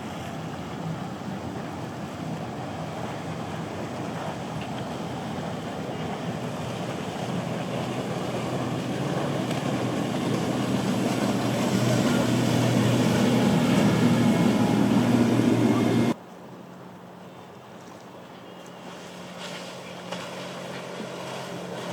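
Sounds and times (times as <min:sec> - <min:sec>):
motorboat engines humming: 0:00.0 - 0:16.2, 0:16.9 - 0:21.9
water noise: 0:00.0 - 0:21.9
wind: 0:00.0 - 0:21.9.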